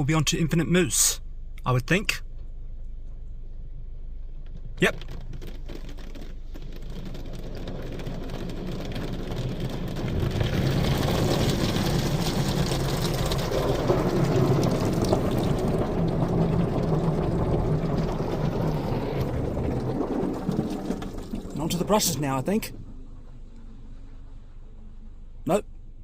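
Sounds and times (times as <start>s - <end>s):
low machinery hum: 0.0s - 4.8s, 6.3s - 26.0s.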